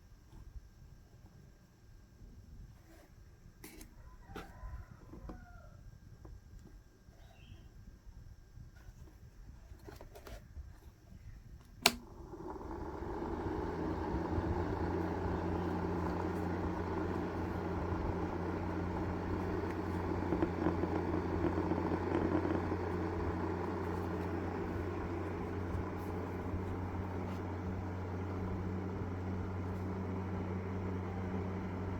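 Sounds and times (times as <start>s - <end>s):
small electric fan whirring: 0.0s - 31.9s
switch click: 11.8s - 12.1s.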